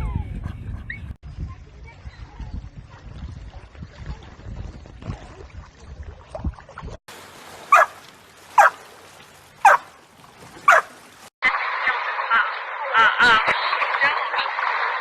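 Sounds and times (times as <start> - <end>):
dog barking: 7.7 - 8.0, 8.6 - 8.8, 9.6 - 9.9, 10.6 - 10.9.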